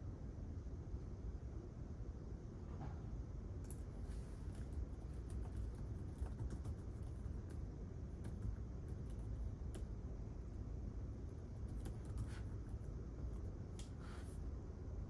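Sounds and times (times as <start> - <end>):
steady low hum: 3.2 - 15.0.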